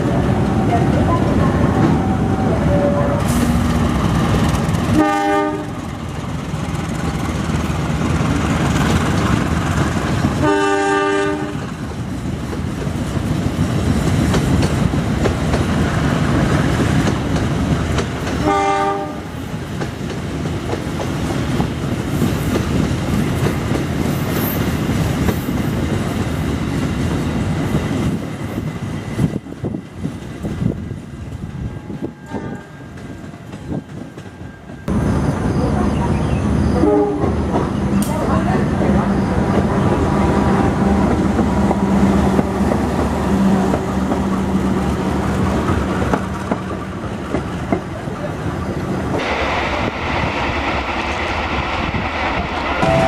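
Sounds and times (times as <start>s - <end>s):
train rumbling past: 0.0s - 53.0s
train horn blasts: 4.9s - 5.8s, 10.4s - 11.7s, 18.4s - 19.3s, 31.7s - 32.9s, 36.7s - 37.4s, 52.8s - 53.0s.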